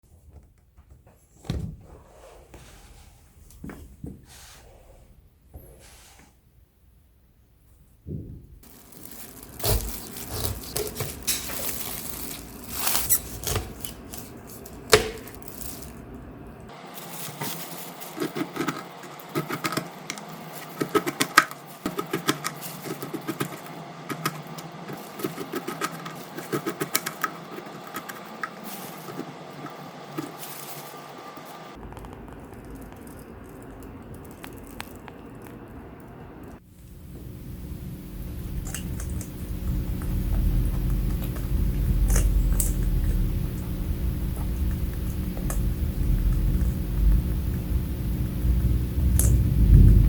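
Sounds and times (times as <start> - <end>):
rabbits crunching and chewing: 8.6 - 50.0.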